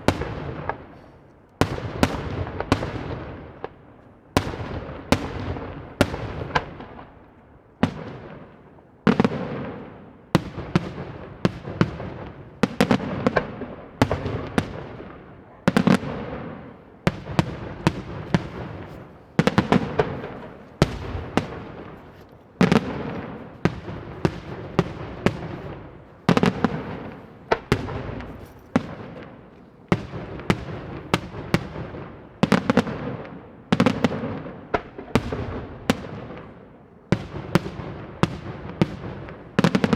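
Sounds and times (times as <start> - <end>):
fireworks bangs: 7.8 - 36.5
fireworks crackling: 9.1 - 33.0.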